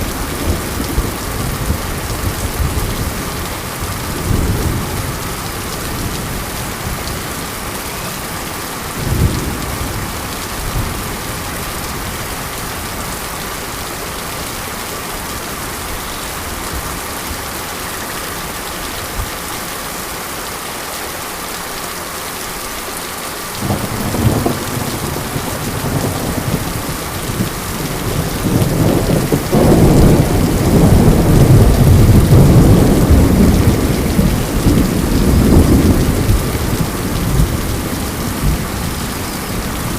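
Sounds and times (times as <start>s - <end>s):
thunder rumbling: 0.0s - 13.2s, 23.6s - 39.9s
rain hissing: 0.0s - 39.9s.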